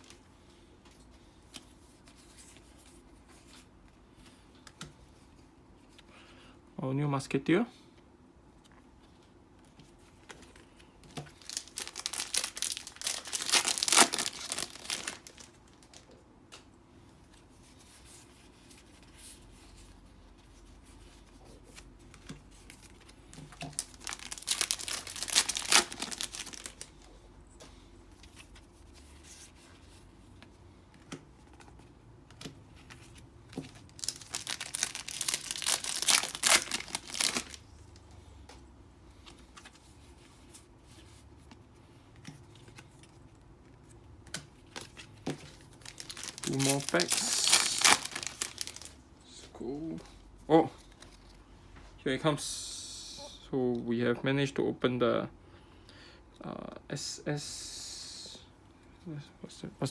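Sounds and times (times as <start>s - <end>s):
foil wrapper tearing and crinkling: 11.3s - 16.0s, 23.6s - 27.0s, 33.7s - 37.6s, 45.7s - 49.0s.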